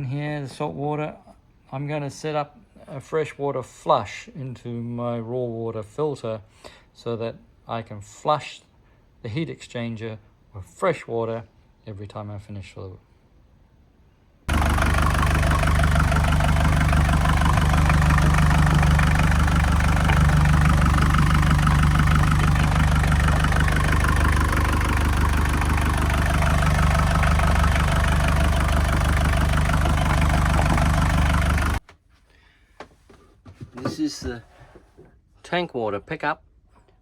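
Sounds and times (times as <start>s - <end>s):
marine diesel engine running: 14.5s - 31.8s.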